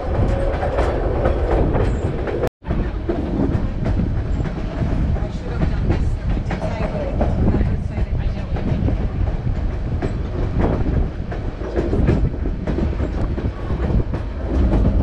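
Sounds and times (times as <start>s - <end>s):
train rumble: 0.0s - 15.0s
wheels clattering on rails: 0.0s - 15.0s.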